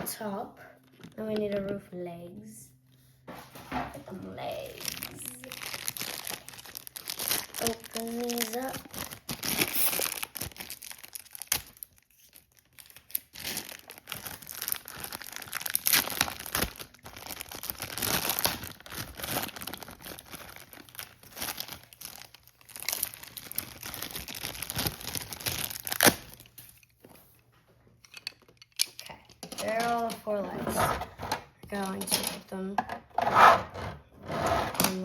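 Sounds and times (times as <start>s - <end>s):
packaging tearing and crinkling: 4.6s - 26.9s.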